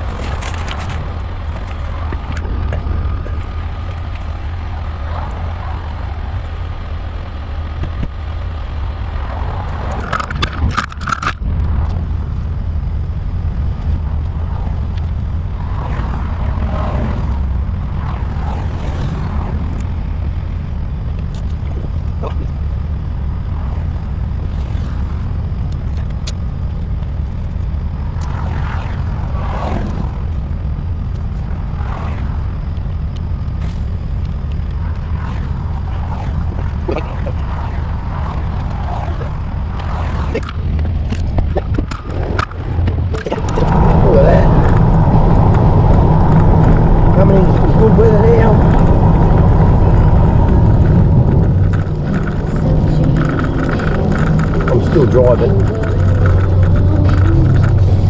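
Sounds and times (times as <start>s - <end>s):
sharp clatter: 0.0s - 12.1s, 28.1s - 58.0s
vehicle driving rumble: 0.0s - 58.0s.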